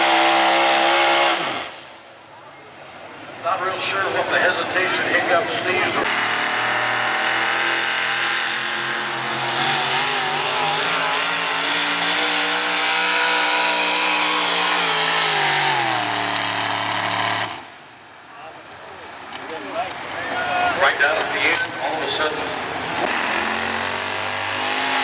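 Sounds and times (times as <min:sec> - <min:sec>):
truck engine revving under load: 0:00.0 - 0:02.0, 0:05.0 - 0:17.9, 0:22.4 - 0:25.0.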